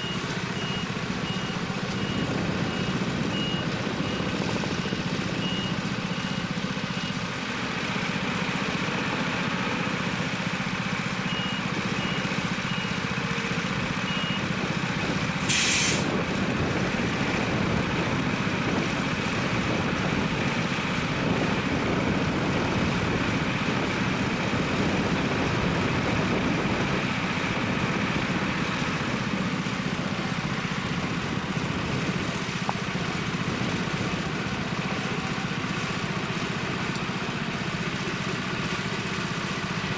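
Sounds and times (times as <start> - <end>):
reversing alarm beeps: 0.0 - 7.3, 11.2 - 13.1, 13.7 - 14.5
diesel truck engine idling: 0.0 - 39.9
air release hiss: 15.4 - 16.1.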